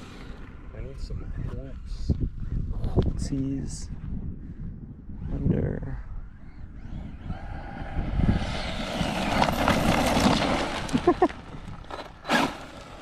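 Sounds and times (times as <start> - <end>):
electric toy truck motor whine: 6.7 - 11.0, 11.7 - 13.0.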